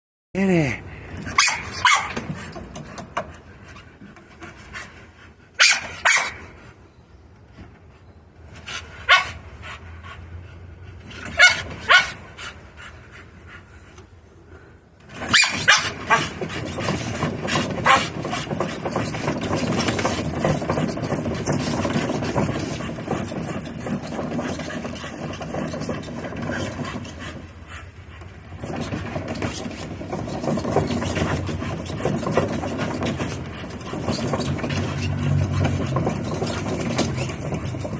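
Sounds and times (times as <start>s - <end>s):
dog barking: 1.4s - 2.1s, 5.6s - 6.4s, 9.1s - 9.4s, 11.4s - 12.2s
continuous rough noise: 7.5s - 37.9s.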